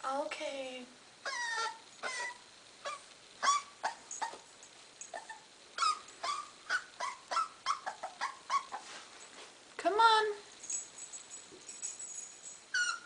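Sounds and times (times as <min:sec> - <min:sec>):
puppy whimpering and yipping: 0:01.2 - 0:09.0, 0:12.7 - 0:13.0.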